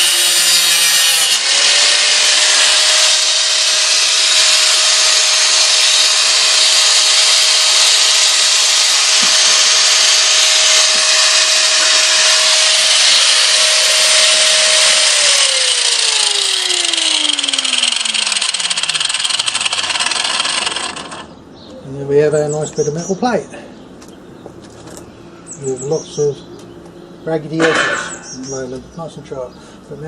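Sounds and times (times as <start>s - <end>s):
angle grinder cutting metal: 0.0s - 21.3s.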